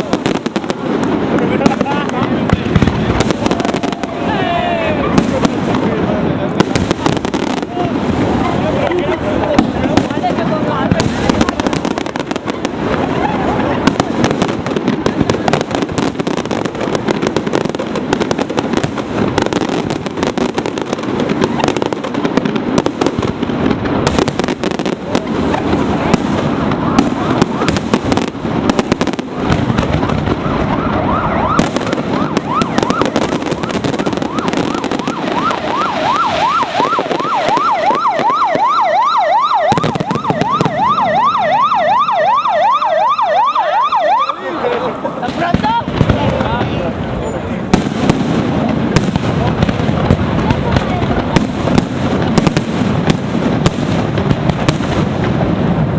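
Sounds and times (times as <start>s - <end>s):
firework bursts and bangs: 0.0s - 42.4s, 44.6s - 55.9s
firework crackling: 0.0s - 55.9s
siren wailing: 3.2s - 5.2s, 26.4s - 45.1s.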